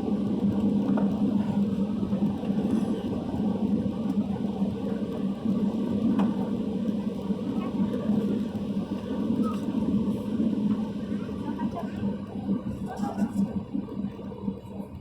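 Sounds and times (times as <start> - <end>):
airplane cabin engine rumble: 7.3 - 15.0.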